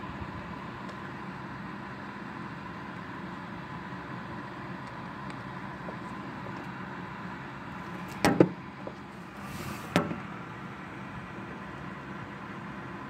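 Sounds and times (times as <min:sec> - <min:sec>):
heavy rain hissing: 0:09.3 - 0:10.4.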